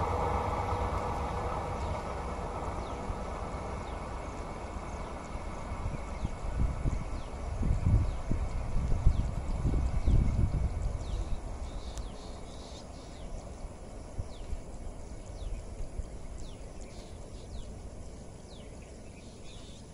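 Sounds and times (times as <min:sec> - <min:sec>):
train rumble: 0:00.0 - 0:19.9
bird chirping: 0:11.0 - 0:13.5, 0:18.4 - 0:19.9.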